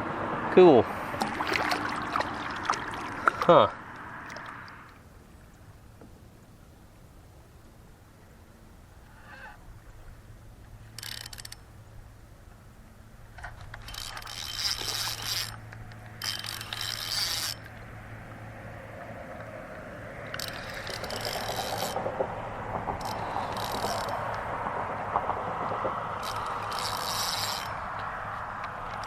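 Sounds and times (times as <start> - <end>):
fishing reel whirring: 10.9 - 11.7, 13.8 - 17.9, 20.3 - 22.0, 22.9 - 24.6, 26.2 - 29.0.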